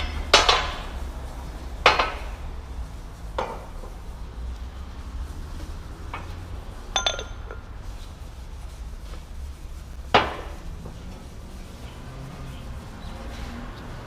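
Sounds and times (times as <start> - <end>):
steel tools clinking on metal: 7.0 - 7.7.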